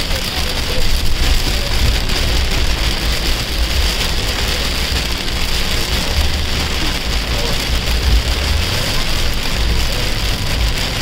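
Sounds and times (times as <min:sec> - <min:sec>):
car low rumble: 0:00.0 - 0:11.0
heavy rain on car windshield: 0:00.0 - 0:11.0.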